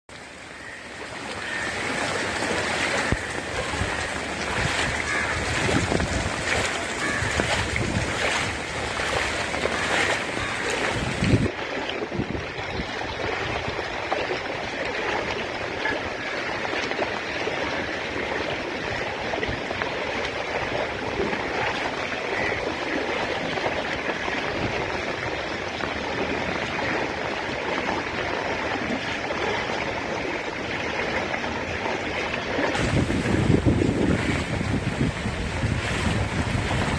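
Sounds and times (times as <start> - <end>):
flowing water rushing: 0.1 - 36.9.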